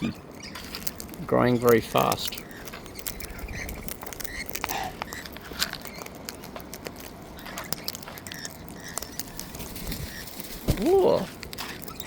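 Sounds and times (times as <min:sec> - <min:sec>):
birds pecking at seed: 0:00.0 - 0:12.0
faint bird chirps: 0:07.4 - 0:12.0.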